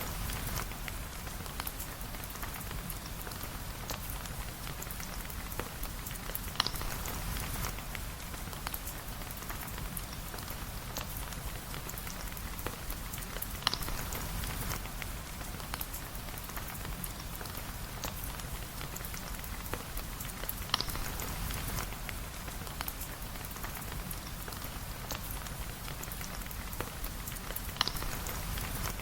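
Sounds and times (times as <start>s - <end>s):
steady rain: 0.0s - 29.0s
water dripping: 3.9s - 29.0s.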